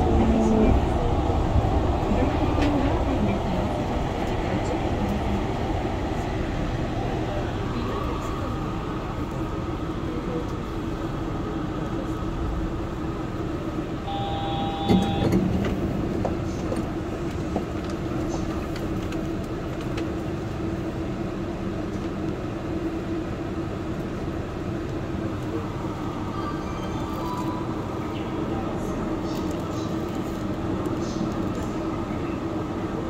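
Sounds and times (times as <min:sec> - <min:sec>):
train humming: 0:00.0 - 0:33.0
short beep: 0:14.1 - 0:15.4.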